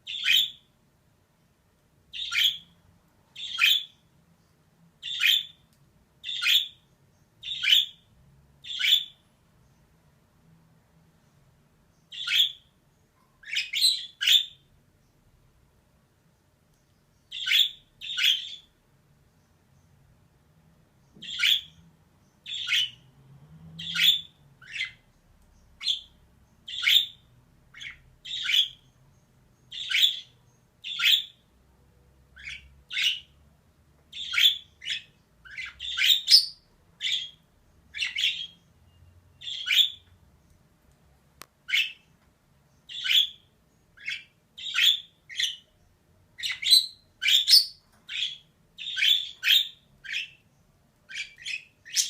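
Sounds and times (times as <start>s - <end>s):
budgerigar calling: 0.1s - 0.6s, 2.2s - 2.7s, 3.4s - 4.0s, 7.4s - 8.0s, 8.6s - 9.2s, 17.3s - 18.7s, 21.2s - 21.8s, 26.7s - 28.8s, 29.7s - 31.4s, 34.2s - 38.6s, 39.4s - 40.0s, 42.9s - 43.4s, 44.0s - 45.6s, 46.4s - 50.4s.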